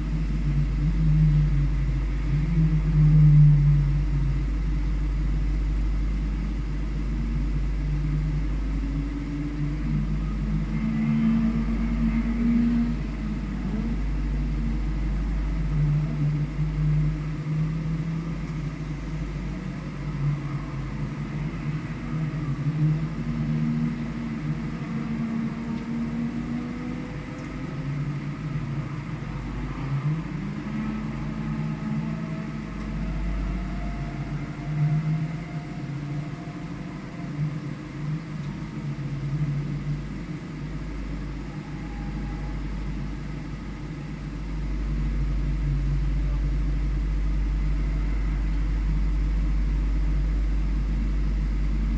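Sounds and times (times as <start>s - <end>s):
vehicle engine accelerating: 0.0s - 51.9s.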